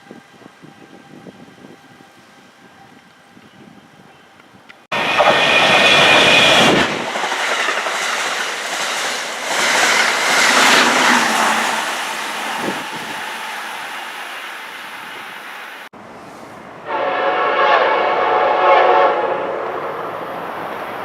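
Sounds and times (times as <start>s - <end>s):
train passing at speed: 4.9s - 21.0s
wheels clattering over rails: 5.0s - 14.5s.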